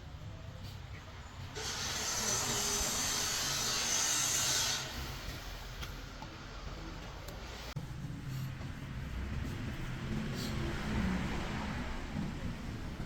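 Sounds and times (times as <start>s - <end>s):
loud hiss: 1.6s - 5.4s.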